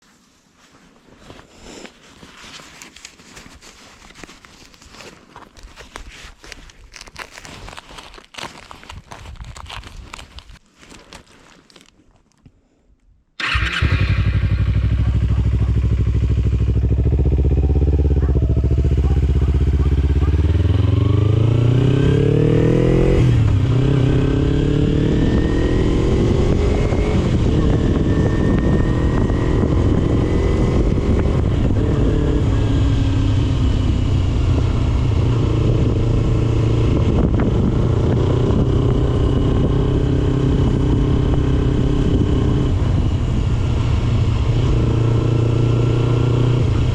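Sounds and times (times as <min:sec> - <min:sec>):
motorcycle engine revving: 0:13.4 - 0:46.9.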